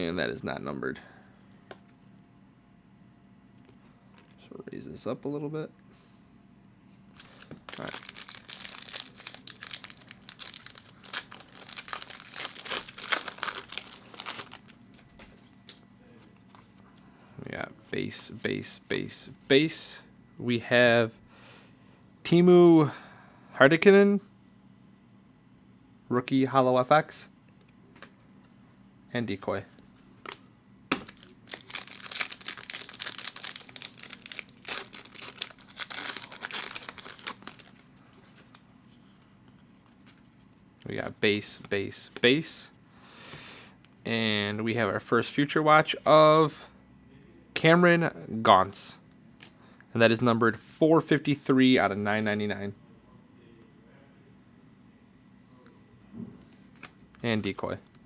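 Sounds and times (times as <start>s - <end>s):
foil wrapper crinkling: 7.1s - 15.6s, 31.0s - 40.2s.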